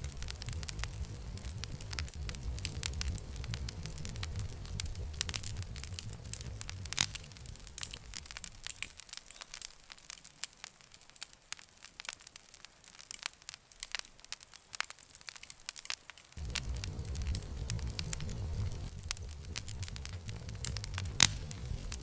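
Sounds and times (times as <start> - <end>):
low rumble: 0.0 - 8.7, 16.4 - 22.0
campfire crackling and popping: 0.0 - 22.0.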